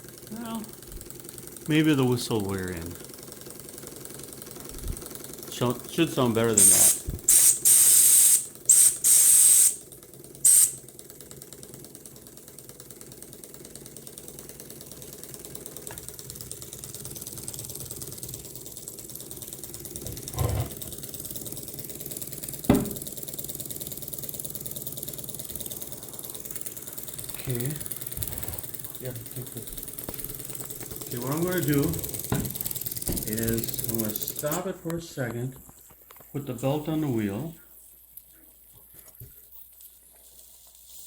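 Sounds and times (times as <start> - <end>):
small steam whistle toots: 6.6 - 9.8, 10.4 - 10.8
engine knocks: 27.0 - 34.0.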